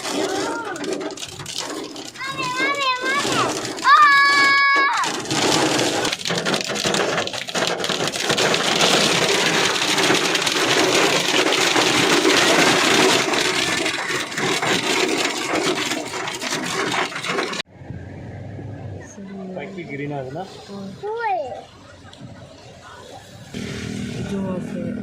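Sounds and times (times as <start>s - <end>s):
hailstones clattering: 0.0s - 17.6s.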